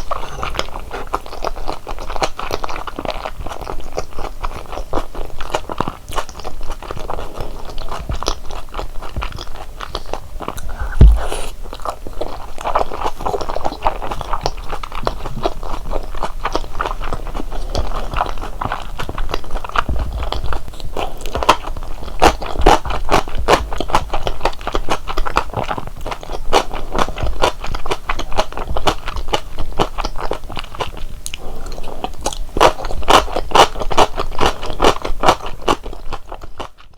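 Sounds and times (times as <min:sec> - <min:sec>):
chewing and biting dumplings: 0:00.0 - 0:36.9
low thump: 0:10.6 - 0:11.5.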